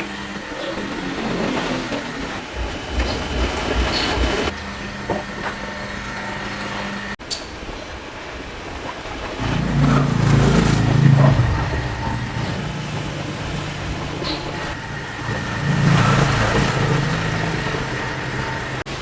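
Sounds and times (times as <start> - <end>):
car engine running: 9.4 - 19.0.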